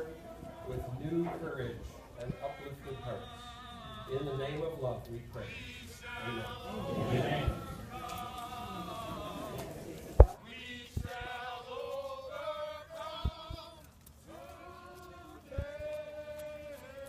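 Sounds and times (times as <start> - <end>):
group singing slow held notes: 0.0 - 17.0.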